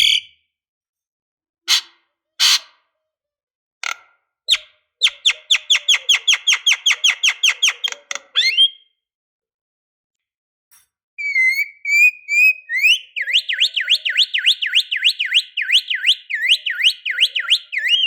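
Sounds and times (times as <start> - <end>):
lovebird chirping and trilling: 4.5 - 8.8, 11.2 - 18.0.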